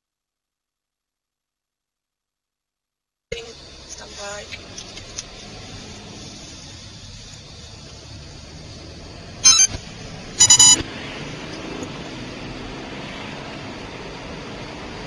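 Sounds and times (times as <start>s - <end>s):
car road noise: 3.4s - 15.0s
police siren blasts: 10.4s - 10.8s.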